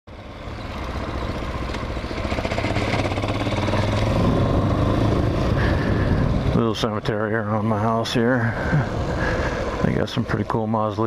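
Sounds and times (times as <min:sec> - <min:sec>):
motorcycle engine running: 0:00.1 - 0:06.9.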